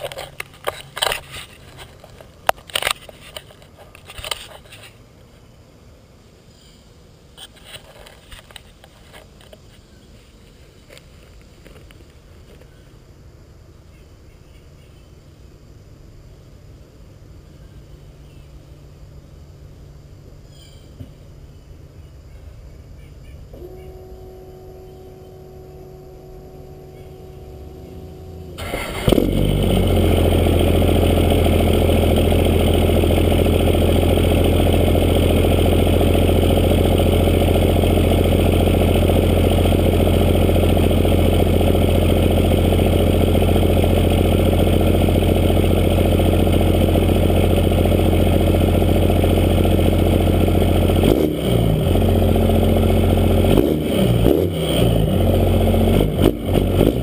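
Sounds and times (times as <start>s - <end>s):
faint steady hum: 0.0s - 50.9s
diesel truck engine idling: 23.4s - 57.0s.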